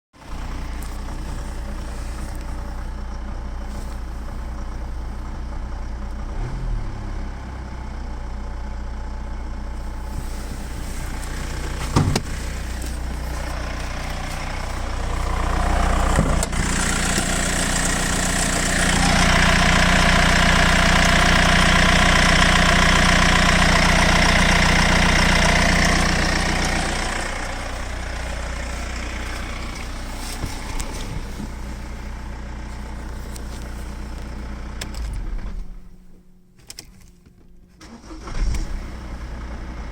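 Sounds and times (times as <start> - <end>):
diesel engine idling: 0.2 - 36.6, 37.8 - 39.9.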